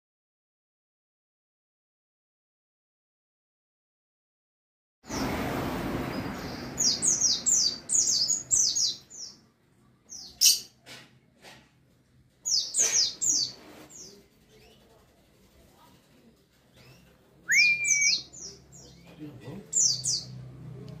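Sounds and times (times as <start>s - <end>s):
rushing noise: 5.1s - 8.8s
bird chirping: 6.1s - 10.8s, 12.4s - 14.9s, 16.7s - 20.5s.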